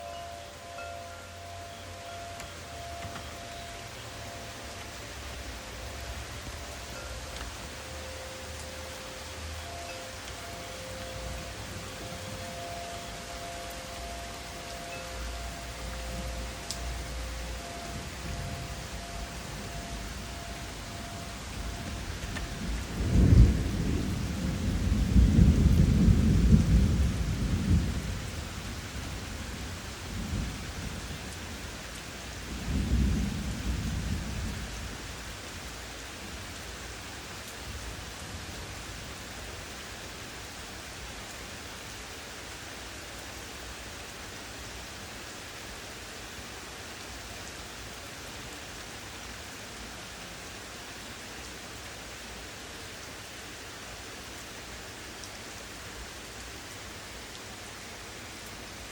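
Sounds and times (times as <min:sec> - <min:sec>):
steady rain: 0:00.0 - 0:58.9
thunder rolling: 0:17.9 - 0:28.2.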